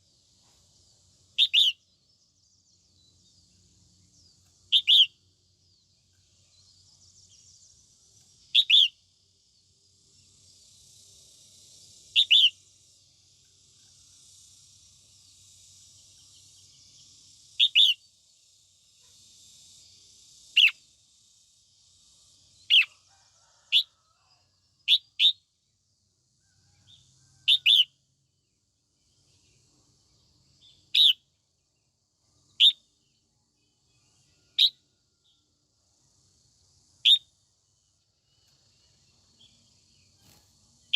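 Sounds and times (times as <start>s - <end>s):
bulbul short sharp calls: 4.7s - 5.2s
faint high hiss: 36.6s - 40.9s.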